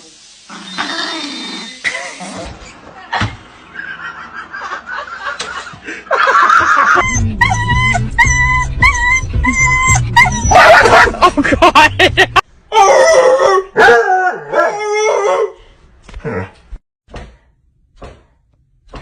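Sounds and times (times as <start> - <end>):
dog whining and yipping: 7.0 - 11.1
music with steady beat and bass: 7.0 - 12.4.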